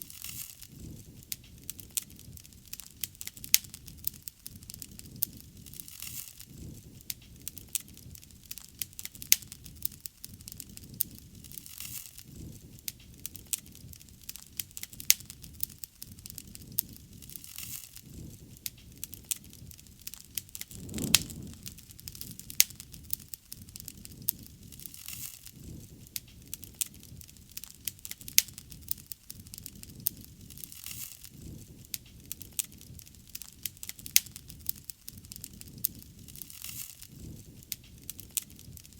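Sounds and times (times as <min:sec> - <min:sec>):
wood fire crackling: 0:00.3 - 0:38.9
low rush: 0:20.7 - 0:22.0.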